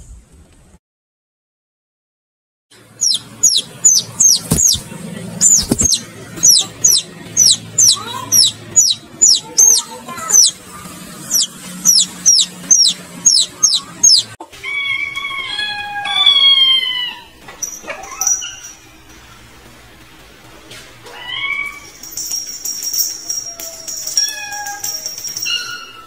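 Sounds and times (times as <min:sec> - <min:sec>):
baby chicks peeping: 0:02.8 - 0:14.4.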